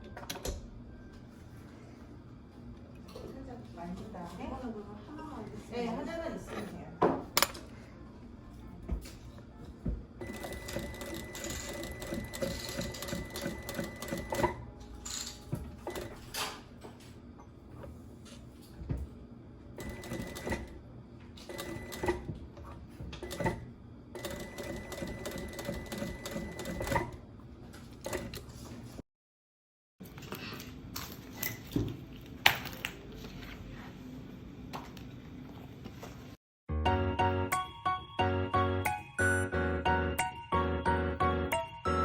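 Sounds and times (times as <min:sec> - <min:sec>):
sewing machine stitching: 0:10.2 - 0:14.6, 0:19.8 - 0:20.7, 0:21.4 - 0:22.3, 0:23.2 - 0:23.6, 0:24.2 - 0:27.2.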